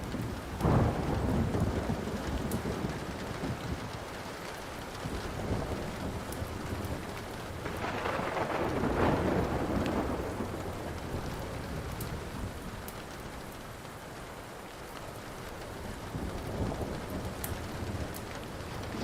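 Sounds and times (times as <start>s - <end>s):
steady rain: 0.0s - 19.0s
thunder rolling: 0.3s - 4.1s, 4.8s - 12.8s.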